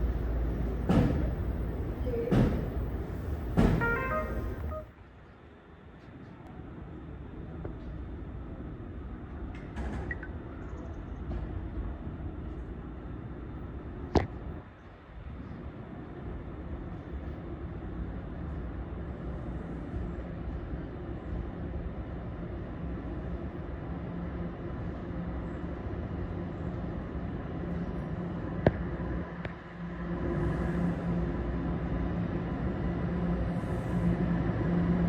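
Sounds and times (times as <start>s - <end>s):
subway train humming: 0.0s - 4.9s, 15.7s - 35.0s.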